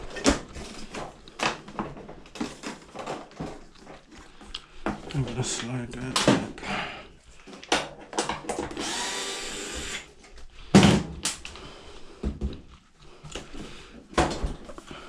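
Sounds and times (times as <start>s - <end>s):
power drill whirring: 8.5s - 10.1s.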